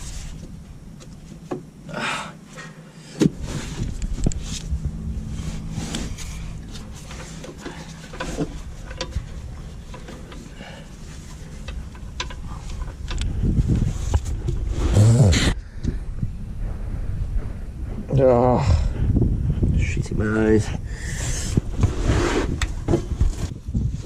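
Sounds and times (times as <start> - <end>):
low steady rumble: 0.0 - 24.0
tools and parts knocking and clicking: 7.4 - 10.6, 11.2 - 13.3.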